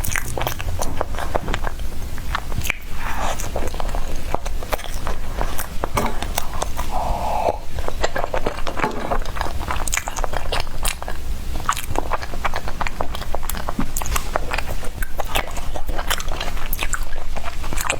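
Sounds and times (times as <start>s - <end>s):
chewing bread mouth clicks: 0.0s - 6.9s, 7.8s - 17.9s
steady low hum: 0.0s - 17.9s.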